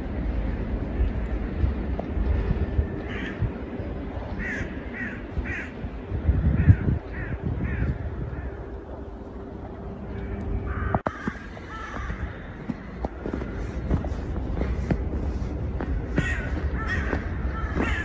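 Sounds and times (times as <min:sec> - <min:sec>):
steady low rumble: 0:00.0 - 0:18.0
bird calling: 0:16.0 - 0:18.0.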